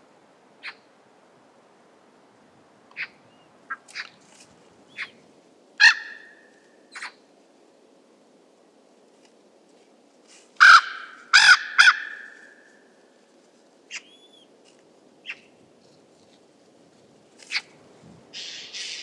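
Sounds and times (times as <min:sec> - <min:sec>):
raven croaking: 0:10.6 - 0:12.6.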